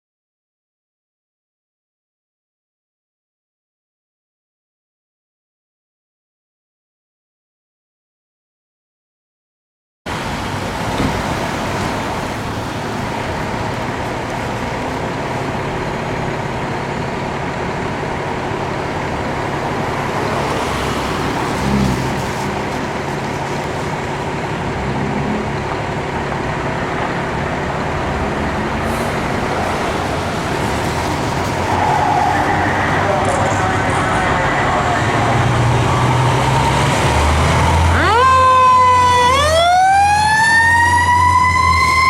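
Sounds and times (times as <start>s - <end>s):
heavy vehicles engine hum: 10.1s - 42.0s.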